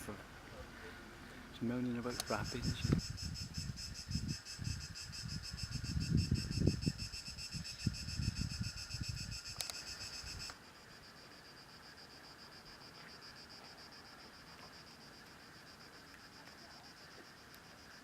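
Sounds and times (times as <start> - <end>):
insects chirping: 0.0 - 18.0
wind rumble on microphone: 2.2 - 10.5.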